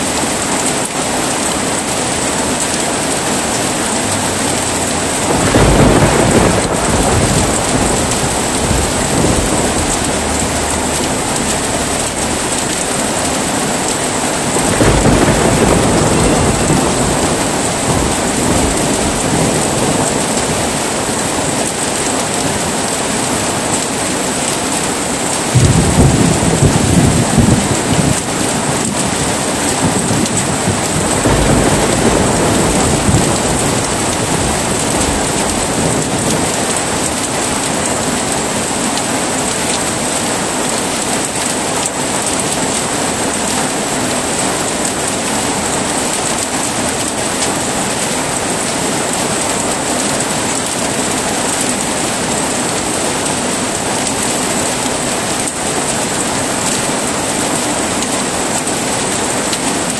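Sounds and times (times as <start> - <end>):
heavy rain: 0.0 - 59.9
thunder rolling: 1.8 - 41.4.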